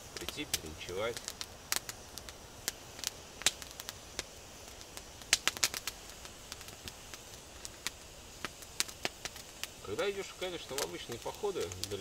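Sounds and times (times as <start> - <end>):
campfire crackling and popping: 0.0 - 12.0
faint hiss: 0.0 - 12.0.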